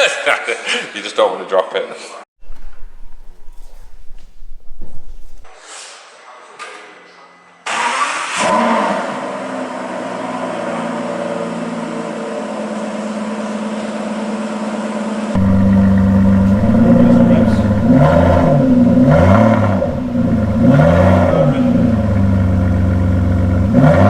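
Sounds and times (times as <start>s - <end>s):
car engine starting and idling: 15.4s - 24.0s
deeper engine note: 15.4s - 24.0s.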